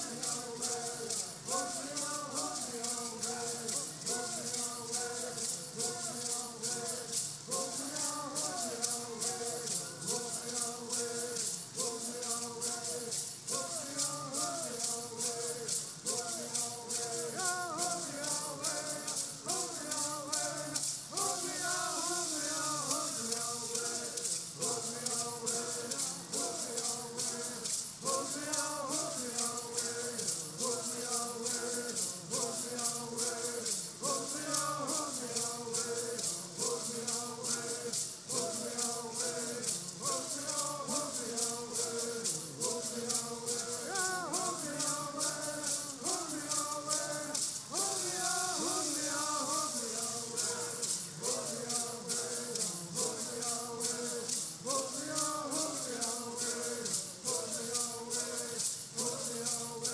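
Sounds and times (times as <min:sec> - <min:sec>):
gourd rattles shaken: 0:00.0 - 0:59.9
voices singing together: 0:00.0 - 0:59.9.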